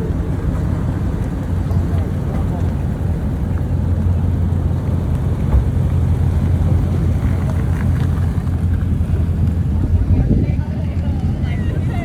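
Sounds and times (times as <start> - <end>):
car engine droning: 0.0 - 12.0
wind noise on microphone: 3.0 - 12.0.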